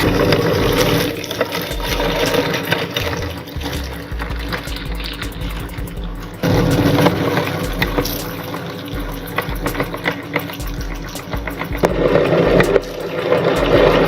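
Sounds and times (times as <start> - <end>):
wet grinding noise: 0.0 - 14.0.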